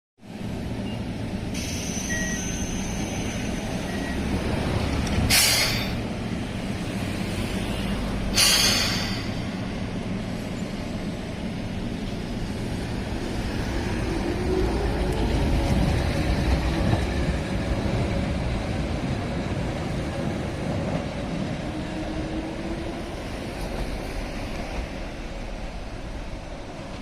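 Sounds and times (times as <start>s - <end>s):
compressed air hisses: 1.6s - 3.4s, 5.3s - 6.0s, 8.3s - 9.6s.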